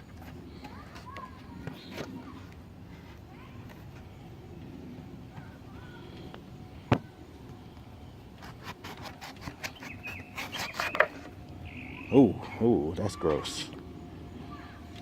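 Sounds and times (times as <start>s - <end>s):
knife crunching through melon rind: 8.4s - 11.1s.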